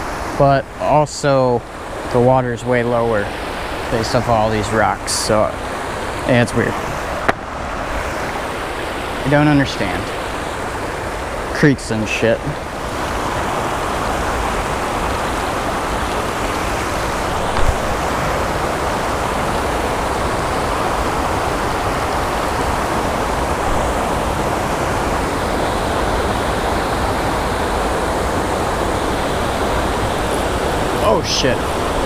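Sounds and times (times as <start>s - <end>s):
water rushing over waterfall: 0.0s - 32.0s
brief knock: 7.2s - 7.4s.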